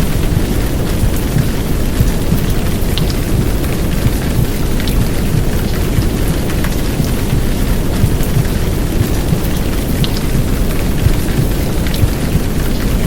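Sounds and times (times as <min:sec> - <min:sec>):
deep womb-sound rumble: 0:00.0 - 0:12.8
heavy rain: 0:00.0 - 0:13.0.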